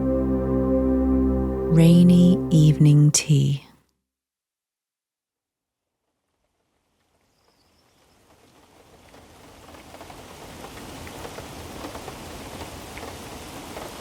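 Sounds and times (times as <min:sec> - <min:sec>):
steady rain with dripping patter: 0:05.9 - 0:14.0.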